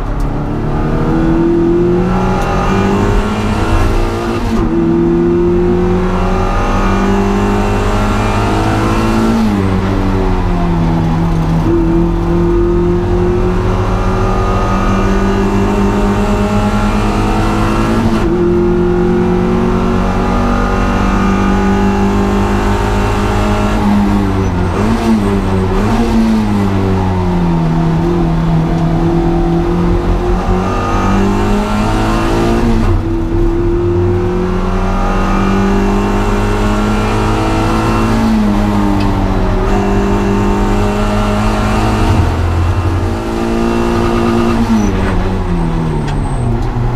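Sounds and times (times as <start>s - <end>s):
car engine revving high: 0.0s - 46.9s.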